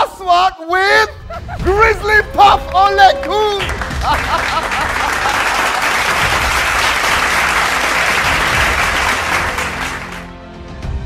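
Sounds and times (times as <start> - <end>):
people clapping: 2.3 - 10.4.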